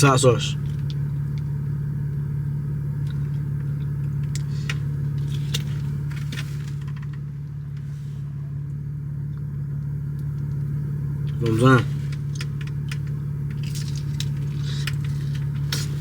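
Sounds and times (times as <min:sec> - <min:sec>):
car engine idling: 0:00.0 - 0:16.0
light clicks and rustles: 0:11.9 - 0:16.0.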